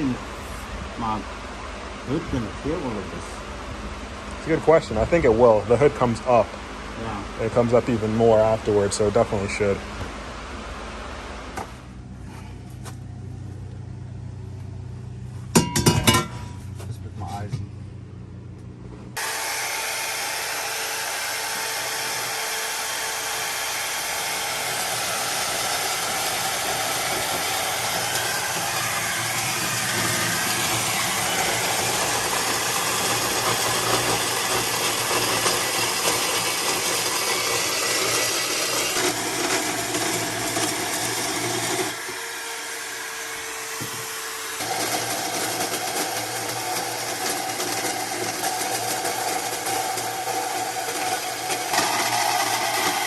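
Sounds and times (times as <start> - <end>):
power tool cutting metal: 19.2 - 53.0.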